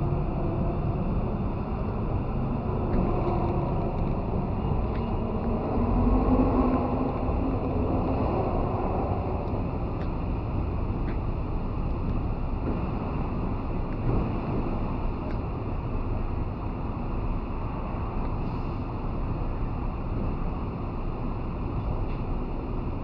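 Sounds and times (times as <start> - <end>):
car road and wind noise: 0.0 - 23.0.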